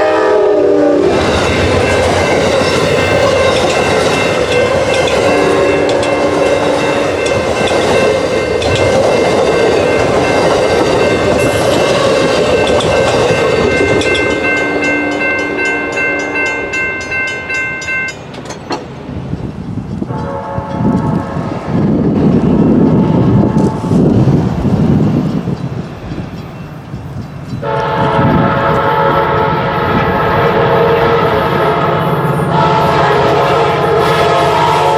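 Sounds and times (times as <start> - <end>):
train wheels rumbling on rails: 0.0 - 34.9
high ringing tones: 1.3 - 18.9.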